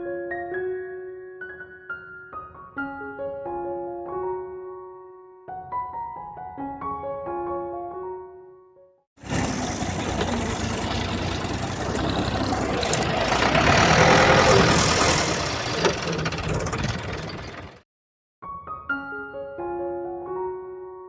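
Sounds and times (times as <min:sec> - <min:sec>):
motor running: 0:09.2 - 0:17.8.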